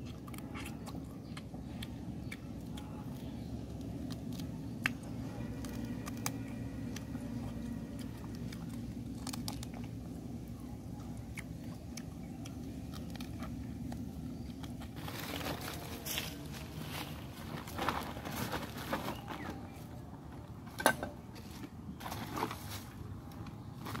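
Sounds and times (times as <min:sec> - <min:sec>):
person chewing crunchy food: 0:00.0 - 0:18.4
low background rumble: 0:00.0 - 0:24.0.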